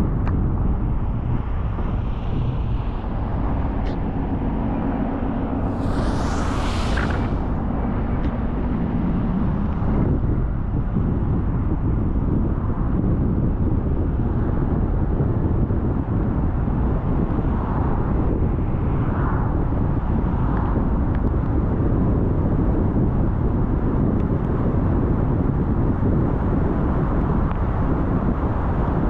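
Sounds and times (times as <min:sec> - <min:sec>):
short hiss: 0:05.7 - 0:07.7.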